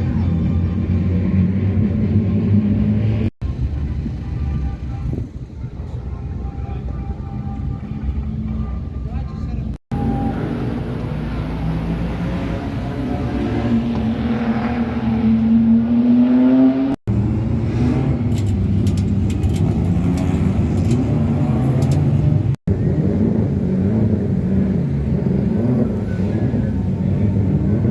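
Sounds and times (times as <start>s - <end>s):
car engine revving: 9.8s - 27.9s.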